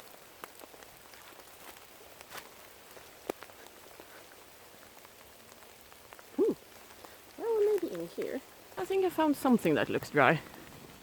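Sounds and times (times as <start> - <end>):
raindrops ticking: 0.0 - 11.0
steady rain falling: 0.0 - 11.0.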